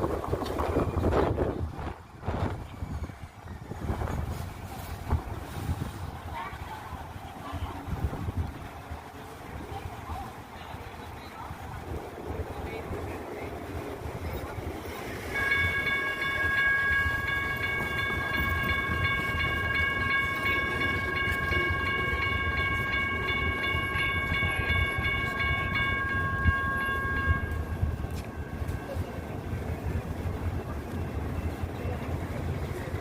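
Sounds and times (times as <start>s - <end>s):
light rail train rumbling: 0.0s - 33.0s
steady high-pitched tone: 15.2s - 32.6s.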